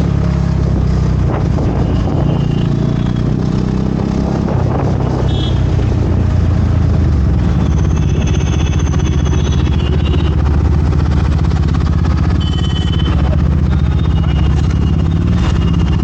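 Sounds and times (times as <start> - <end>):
vehicle engine running: 4.7 - 16.0.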